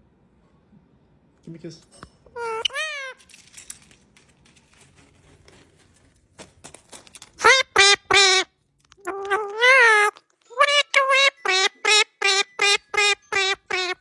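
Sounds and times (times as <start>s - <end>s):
parrot squawking: 2.3s - 3.2s, 7.4s - 14.0s
faint clicks and rustles: 3.2s - 7.4s.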